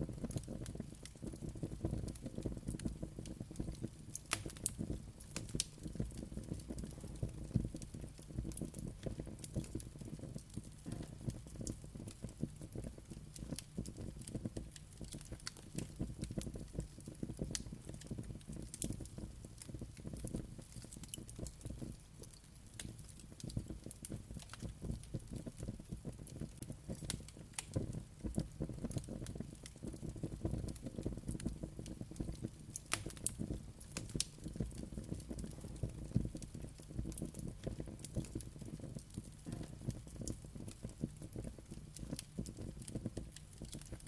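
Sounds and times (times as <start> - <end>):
fire crackling and popping: 0.0 - 44.0
rumble of flames: 0.0 - 44.0.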